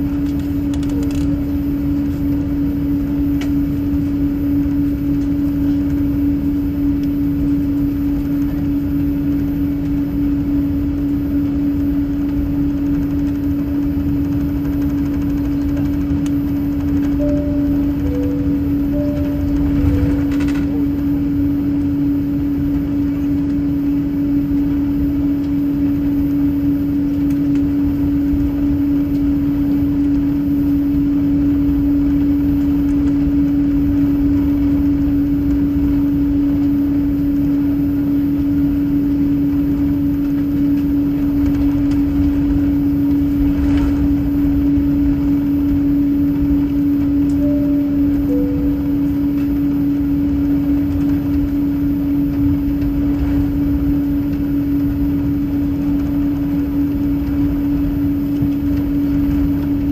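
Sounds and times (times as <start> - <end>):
airliner cabin drone: 0.0 - 59.9
two-note cabin chime: 17.2 - 22.4, 47.3 - 50.8.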